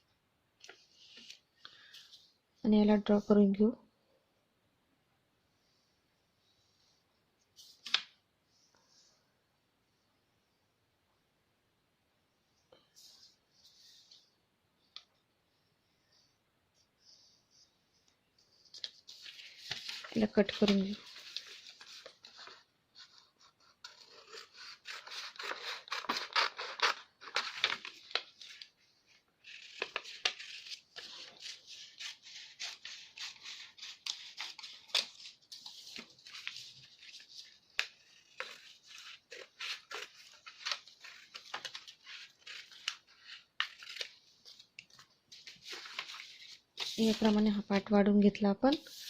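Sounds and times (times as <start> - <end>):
paper crinkling and rustling: 18.4 - 47.9
scissors snipping paper: 23.1 - 27.9, 29.4 - 35.4, 37.4 - 44.1.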